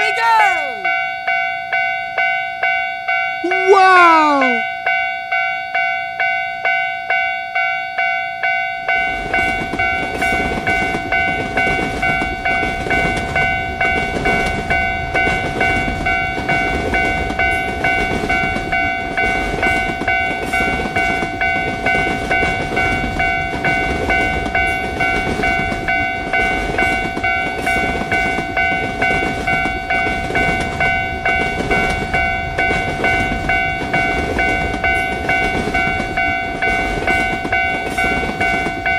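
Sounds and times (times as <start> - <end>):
level-crossing warning bell: 0.0 - 38.9
passing train rumble: 8.9 - 38.9.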